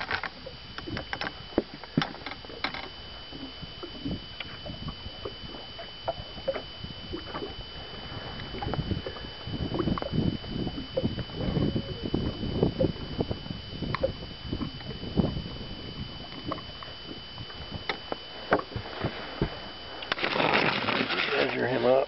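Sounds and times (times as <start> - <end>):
fishing gear knocking and rattling: 0.0 - 2.9.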